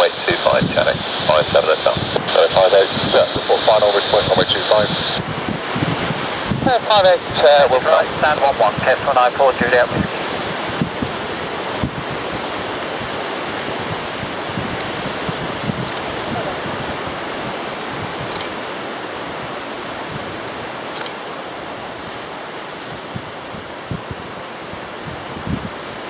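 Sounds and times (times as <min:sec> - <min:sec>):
gusty wind on microphone: 0:00.0 - 0:26.0.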